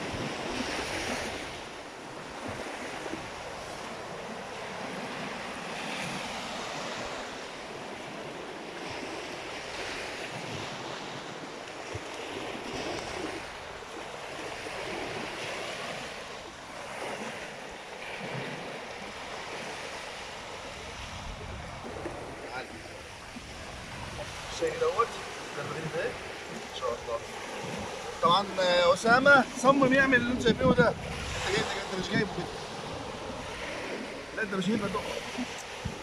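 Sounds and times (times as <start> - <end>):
sea waves breaking on shore: 0.0 - 36.0
wind buffeting microphone: 18.1 - 36.0.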